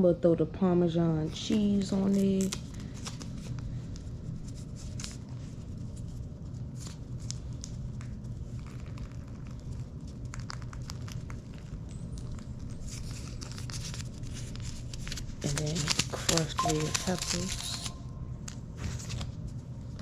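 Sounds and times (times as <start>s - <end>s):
steady low hum: 0.0s - 20.0s
cheese packets crinkling: 6.7s - 18.0s.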